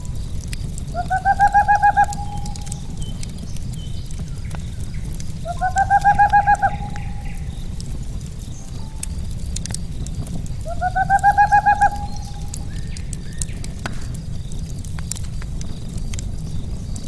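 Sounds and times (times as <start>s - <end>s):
sharp pops of fire: 0.0s - 1.0s, 2.1s - 5.6s, 7.0s - 10.8s, 12.1s - 17.0s
bird calling: 0.0s - 9.3s, 9.9s - 14.2s
campfire crackling: 0.0s - 17.0s
low rumble of burning logs: 0.0s - 17.0s.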